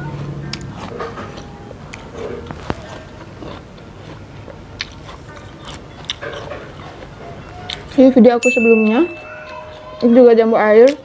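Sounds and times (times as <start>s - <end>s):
mouth chewing crisp fruit: 0.0s - 8.2s.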